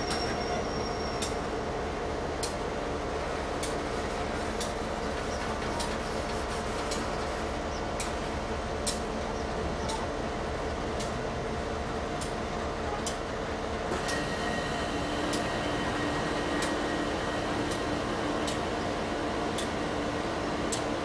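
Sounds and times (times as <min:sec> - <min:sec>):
railcars rolling past: 0:00.0 - 0:21.0
wheels clicking over rail joints: 0:04.5 - 0:07.2.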